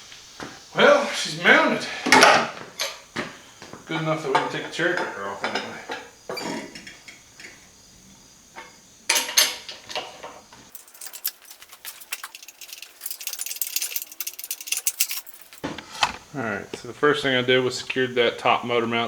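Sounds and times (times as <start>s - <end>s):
metal clanking and knocking: 10.7s - 15.7s
metallic clicks and rattling of tools: 10.7s - 15.7s.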